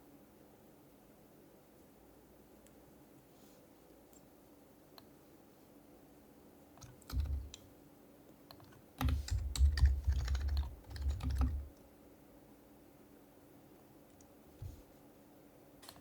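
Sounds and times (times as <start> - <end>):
keyboard typing: 6.8 - 7.6, 8.5 - 11.8.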